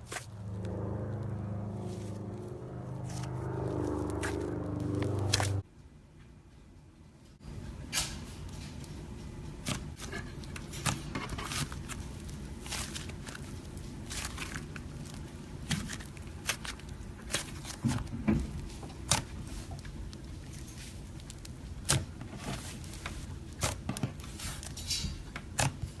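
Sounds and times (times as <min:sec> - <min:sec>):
hands squishing slime: 0:09.6 - 0:26.0.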